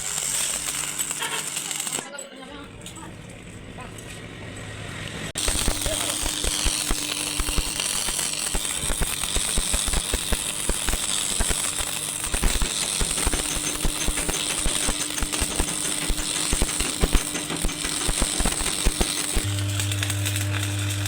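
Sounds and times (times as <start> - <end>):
mechanical knocks and rattles: 12.3 - 19.4.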